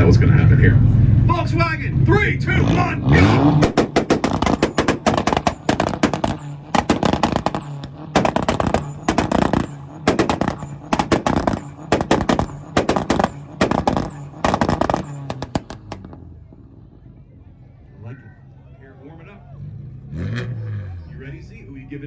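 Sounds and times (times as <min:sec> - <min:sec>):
car engine running: 0:02.2 - 0:17.4
exhaust pops and bangs: 0:03.2 - 0:16.3.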